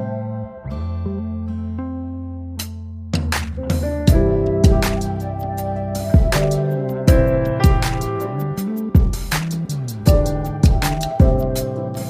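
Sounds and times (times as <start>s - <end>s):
instrumental music with drum beat: 2.6s - 12.0s.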